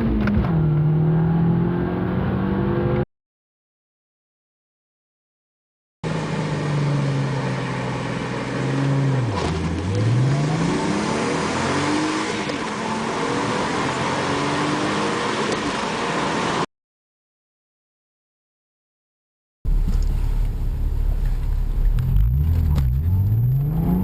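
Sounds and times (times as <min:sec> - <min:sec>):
car engine accelerating: 0:00.0 - 0:03.0, 0:06.1 - 0:16.6, 0:19.7 - 0:24.0.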